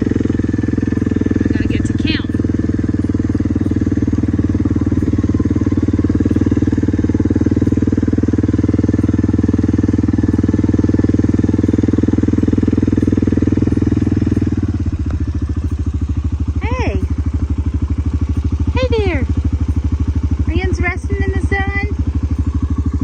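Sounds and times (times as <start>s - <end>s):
small vehicle engine running: 0.0s - 23.0s.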